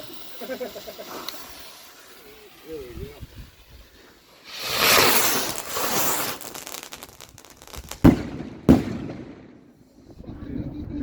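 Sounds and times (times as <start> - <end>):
firework crackling: 0.0 - 10.0
sharp firework bangs: 4.4 - 9.7.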